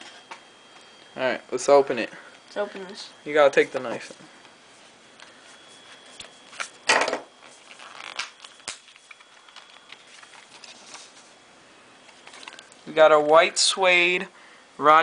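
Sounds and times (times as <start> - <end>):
packaging scrape or rip: 7.4 - 11.2.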